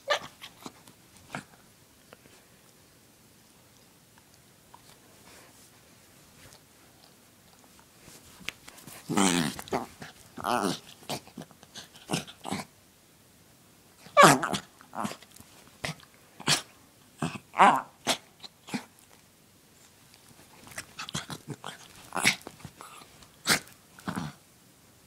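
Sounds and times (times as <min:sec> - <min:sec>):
dog sneezing: 0:23.4 - 0:23.7.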